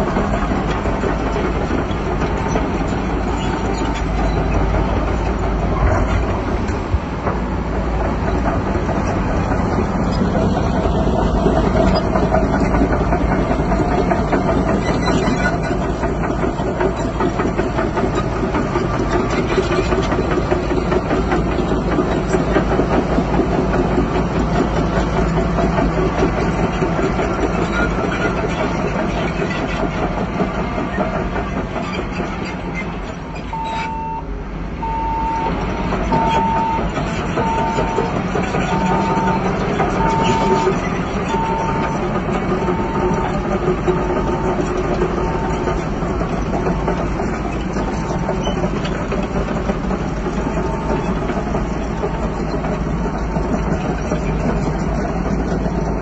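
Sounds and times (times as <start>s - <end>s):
bulldozer diesel engine running: 0.0s - 56.0s
tracks clanking: 0.0s - 56.0s
reversing alarm beeping: 33.3s - 43.5s, 44.2s - 45.8s, 50.5s - 51.4s.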